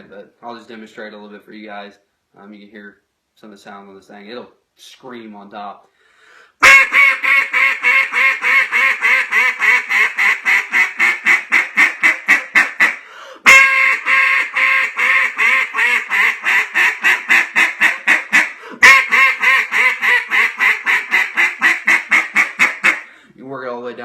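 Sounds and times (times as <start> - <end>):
duck call quacking: 6.6 - 23.1.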